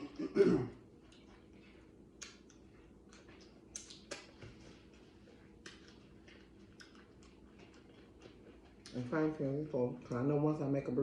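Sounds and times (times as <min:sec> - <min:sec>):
low steady hum: 0:00.0 - 0:11.0
eating and food handling clicks: 0:02.2 - 0:04.4.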